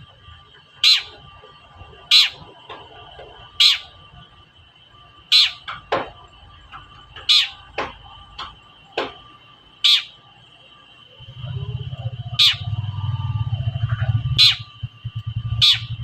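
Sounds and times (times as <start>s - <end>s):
shrike harsh calls: 0.6s - 1.4s, 2.0s - 2.6s, 3.4s - 4.1s, 5.0s - 5.8s, 7.2s - 7.8s, 9.6s - 16.0s.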